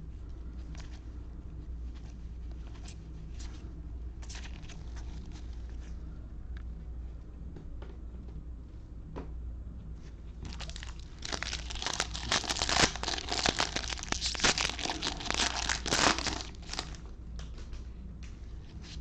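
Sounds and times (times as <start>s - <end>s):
foil wrapper tearing and crinkling: 10.5s - 17.0s.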